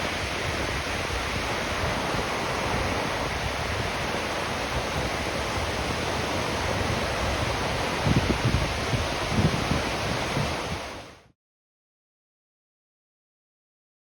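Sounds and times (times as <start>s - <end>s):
wind buffeting microphone: 0.0s - 11.2s
ocean surf breaking: 0.0s - 11.3s.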